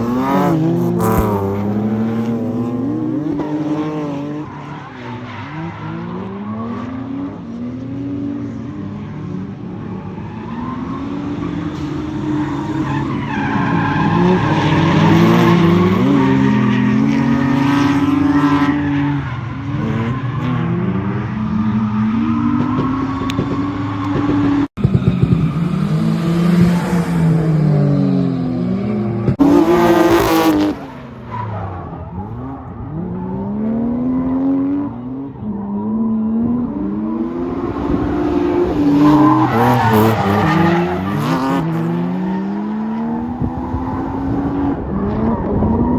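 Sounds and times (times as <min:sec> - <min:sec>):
turbocharged car engine revving: 0:00.0 - 0:04.5
tire squeal and skid: 0:00.0 - 0:25.8, 0:29.4 - 0:45.9.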